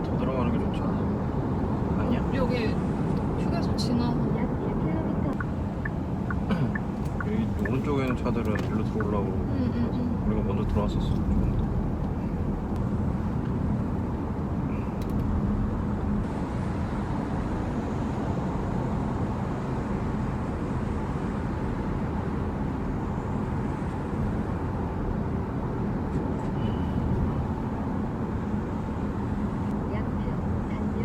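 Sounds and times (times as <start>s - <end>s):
road and tyre noise: 0.0s - 31.0s.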